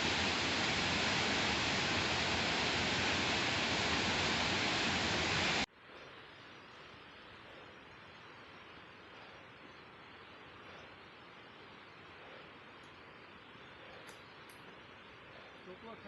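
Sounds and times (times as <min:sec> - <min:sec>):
waterfall rushing: 0:00.0 - 0:05.6
faint steady hiss: 0:00.0 - 0:16.0.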